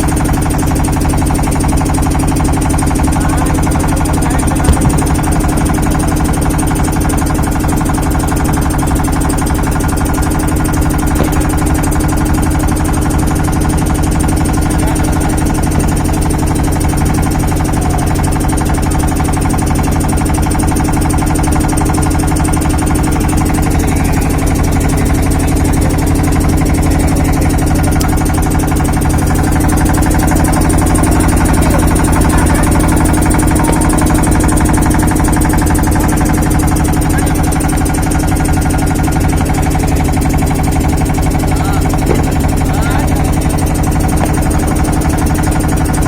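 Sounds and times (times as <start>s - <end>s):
low engine hum: 0.0s - 46.0s.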